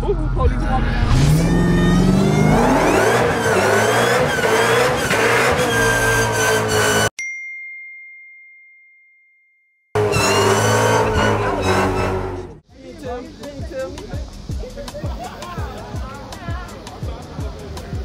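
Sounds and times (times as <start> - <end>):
car engine revving high: 0.9 - 7.1, 10.0 - 12.6
ding chime: 7.2 - 9.9.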